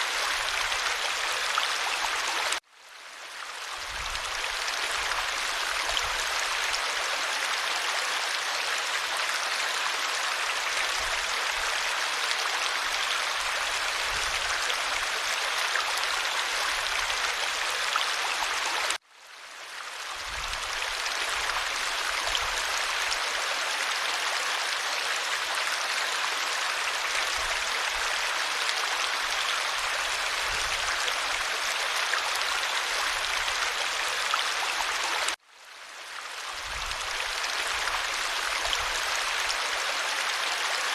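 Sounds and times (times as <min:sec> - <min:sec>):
stream water flowing over stones: 0:00.0 - 0:40.9.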